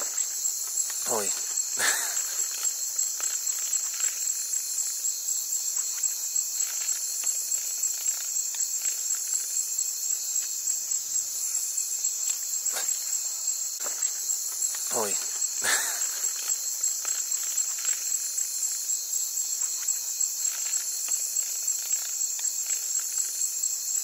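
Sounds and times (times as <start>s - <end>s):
rainforest insects trilling: 0.0s - 24.0s.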